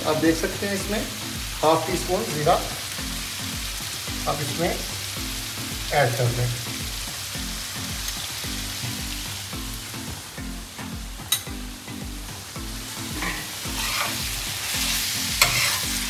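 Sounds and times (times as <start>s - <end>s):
food sizzling in ghee: 0.0s - 16.0s
soft background music with beat: 0.0s - 16.0s
spatula scraping pan: 13.1s - 16.0s.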